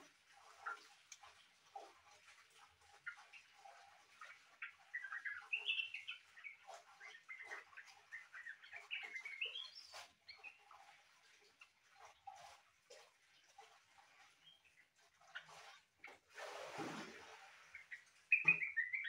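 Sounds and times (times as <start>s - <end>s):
bird warbling song: 3.0s - 10.8s, 17.6s - 19.0s.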